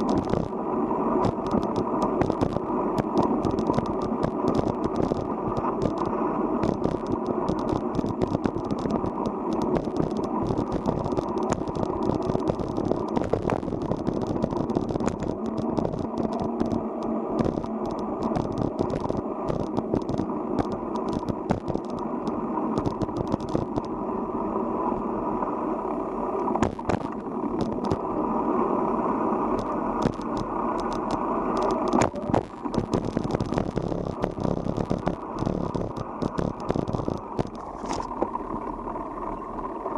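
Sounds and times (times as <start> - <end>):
bicycle tyres rumbling: 0.0 - 39.9
bicycle rattling clicks: 1.3 - 22.1, 29.6 - 37.6.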